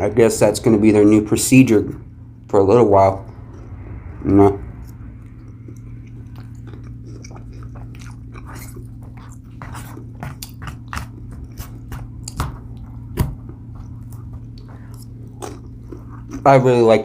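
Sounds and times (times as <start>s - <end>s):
steady low hum: 0.0s - 17.0s
chewing crunchy salad: 2.0s - 17.0s.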